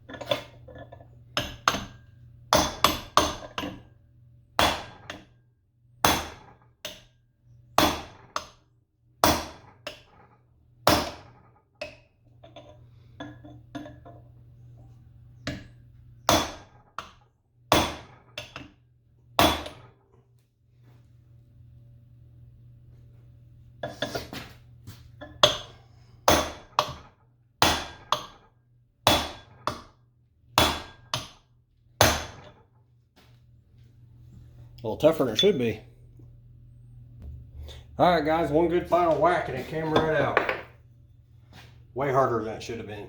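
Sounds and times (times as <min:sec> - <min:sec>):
hammer striking metal: 0:30.6 - 0:31.4, 0:32.0 - 0:32.5.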